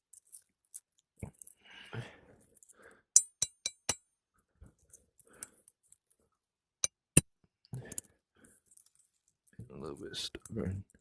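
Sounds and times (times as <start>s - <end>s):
metal-on-metal clinks: 3.2s - 4.2s.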